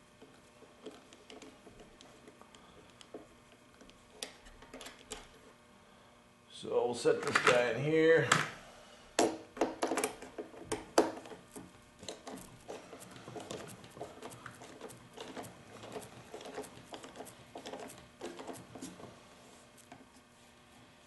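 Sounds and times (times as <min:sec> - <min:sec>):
clicks and taps of small parts: 0:09.2 - 0:11.4.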